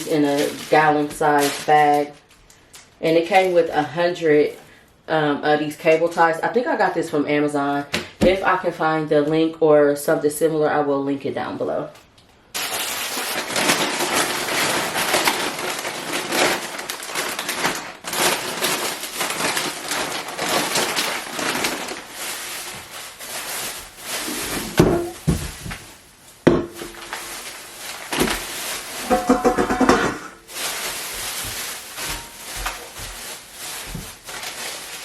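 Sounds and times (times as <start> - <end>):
objects rustling and clattering: 12.6 - 35.0
sharp knocks: 29.0 - 30.4.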